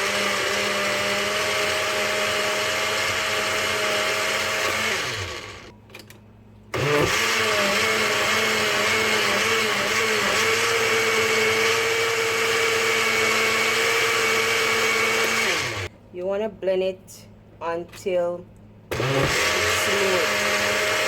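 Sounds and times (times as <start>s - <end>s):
blender motor running: 0.0s - 5.7s, 6.8s - 15.9s, 18.9s - 21.0s
blender clicks: 18.9s - 21.0s.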